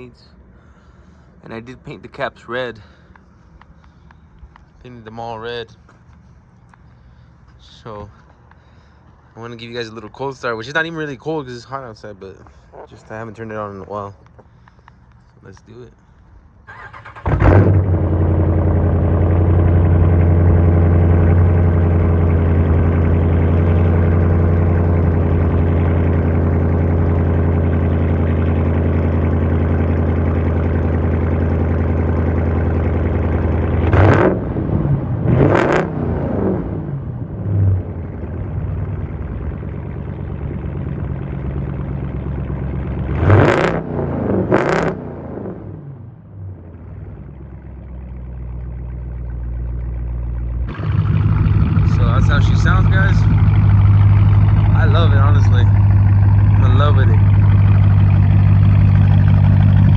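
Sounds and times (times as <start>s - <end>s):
car engine starting and idling: 0.0s - 59.9s
engine revving: 16.7s - 47.5s, 49.0s - 59.9s.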